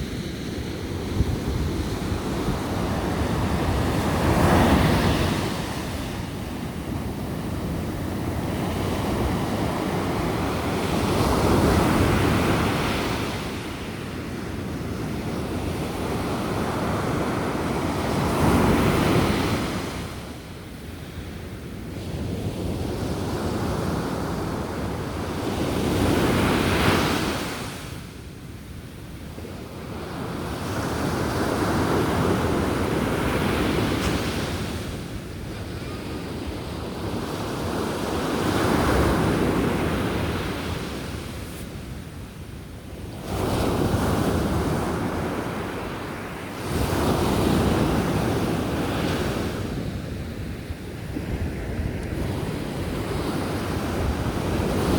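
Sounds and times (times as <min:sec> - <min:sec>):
sea waves breaking on beach: 0:00.0 - 0:20.2.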